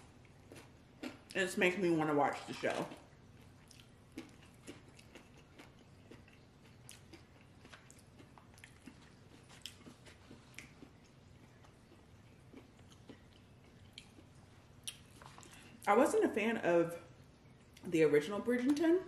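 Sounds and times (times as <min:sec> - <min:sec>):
person chewing food: 0:00.1 - 0:01.4, 0:02.5 - 0:15.9.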